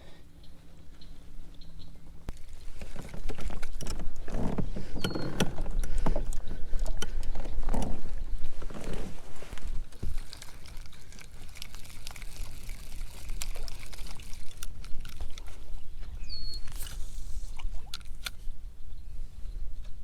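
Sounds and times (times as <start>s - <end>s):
water sloshing against kayak hull: 2.3s - 18.3s.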